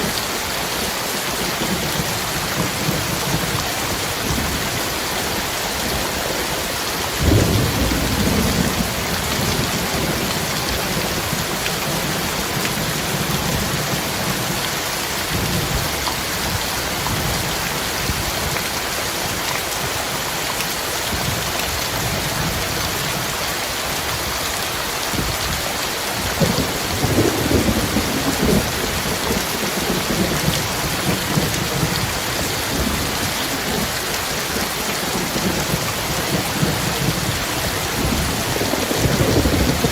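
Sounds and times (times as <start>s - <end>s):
heavy rain falling: 0.0s - 39.9s
thunder rumbling: 7.2s - 14.5s, 26.2s - 39.9s.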